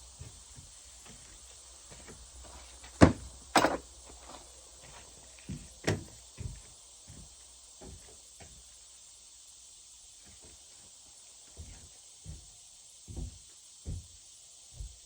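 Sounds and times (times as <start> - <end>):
light thumps and knocks: 3.0 - 3.8, 13.1 - 15.0.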